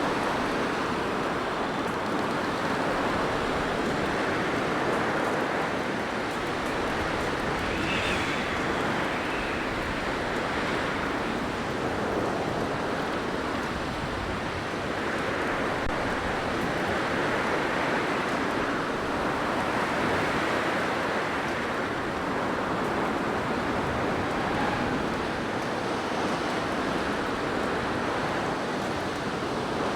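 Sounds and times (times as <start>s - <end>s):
blizzard wind blowing: 0.0s - 28.6s.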